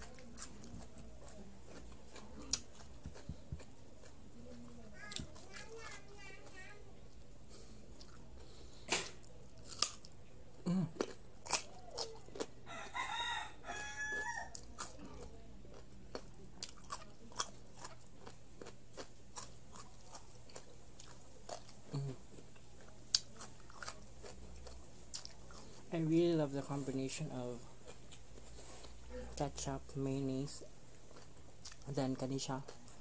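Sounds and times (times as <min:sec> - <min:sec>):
crunchy carrot chewing: 0:00.0 - 0:07.2, 0:08.0 - 0:13.4, 0:14.5 - 0:25.9
rooster crowing: 0:12.6 - 0:14.6.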